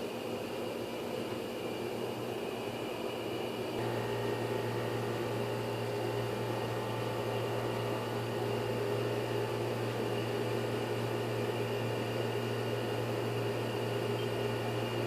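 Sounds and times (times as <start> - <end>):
motor humming: 3.8 - 15.0.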